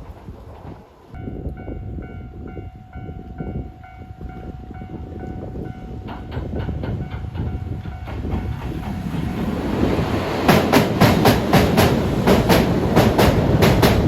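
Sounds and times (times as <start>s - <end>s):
train rumble: 0.0s - 14.0s
train wheels clattering: 5.8s - 14.0s.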